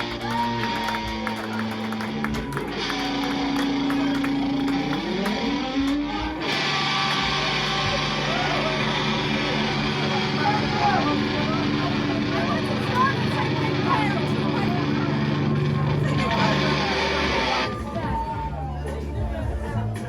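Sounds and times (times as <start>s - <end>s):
loud electric guitar: 0.0s - 18.8s
band playing: 0.0s - 20.0s.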